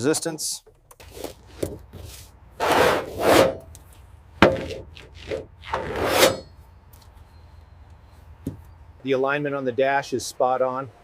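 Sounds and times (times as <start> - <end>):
scraping strokes: 1.0 - 6.6.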